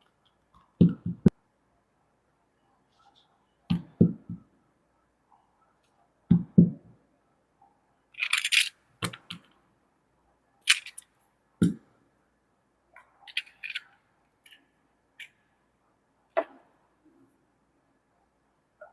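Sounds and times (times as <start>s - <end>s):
plastic toy pieces knocking: 8.2s - 9.4s, 10.7s - 11.0s.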